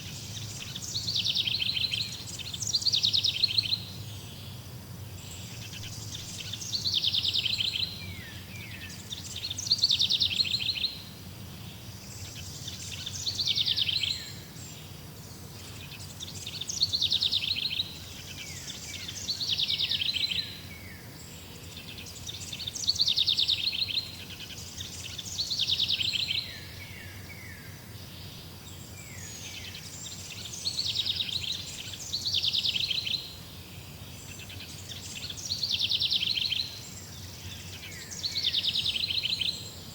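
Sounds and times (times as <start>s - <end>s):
songbird trilling: 0.0s - 4.6s, 5.2s - 11.1s, 12.0s - 14.8s, 15.6s - 20.6s, 21.9s - 33.4s.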